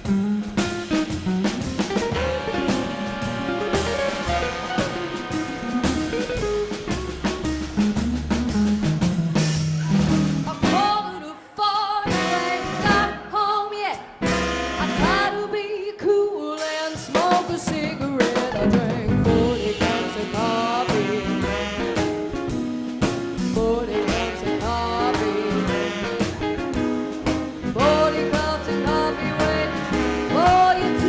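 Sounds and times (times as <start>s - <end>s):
lead melody with bending notes: 0.0s - 11.0s
swing band playing: 0.0s - 31.0s.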